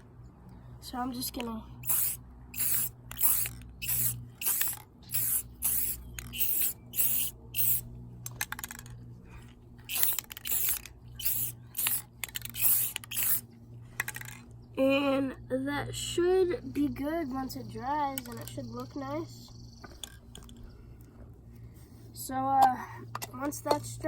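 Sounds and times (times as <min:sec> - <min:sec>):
steady low hum: 0:00.0 - 0:24.0
aerosol spray can hissing: 0:01.8 - 0:07.8.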